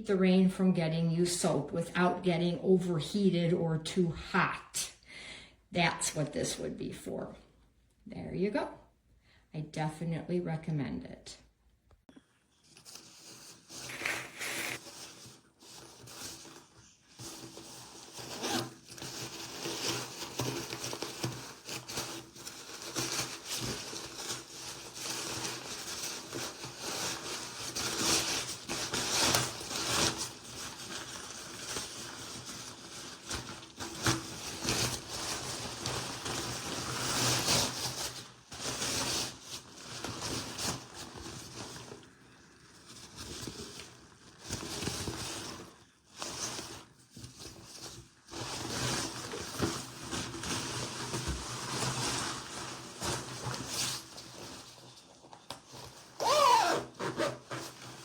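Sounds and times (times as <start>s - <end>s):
nylon jacket rustling: 13.8s - 14.8s, 18.4s - 18.6s, 56.2s - 57.5s.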